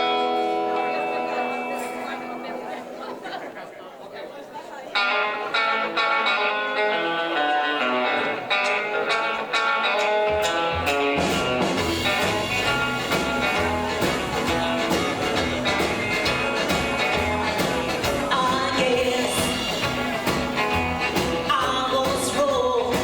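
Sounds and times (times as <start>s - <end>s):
picked guitar melody: 0.0s - 3.2s, 4.9s - 23.0s
rockabilly band playing: 0.0s - 3.4s, 4.9s - 23.0s
low bass notes: 10.7s - 23.0s.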